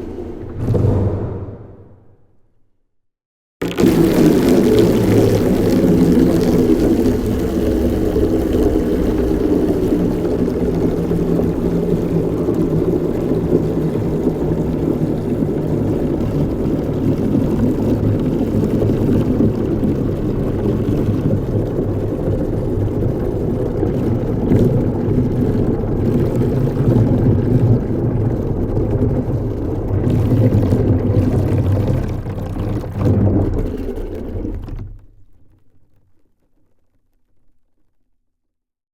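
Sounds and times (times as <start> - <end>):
campfire rumble: 3.6 - 37.4
faint fire crackles: 34.8 - 38.4.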